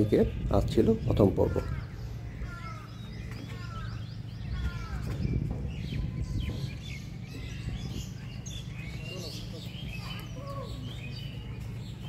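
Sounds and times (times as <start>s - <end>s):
birds chirping and calling: 0.0s - 12.0s
low steady rumble: 0.2s - 12.0s.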